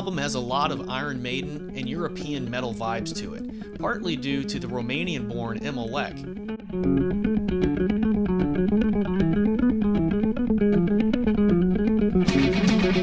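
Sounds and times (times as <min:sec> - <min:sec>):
bass guitar: 0:00.0 - 0:13.0
electric guitar riff: 0:00.0 - 0:13.0
heavy metal band playing: 0:12.2 - 0:13.0.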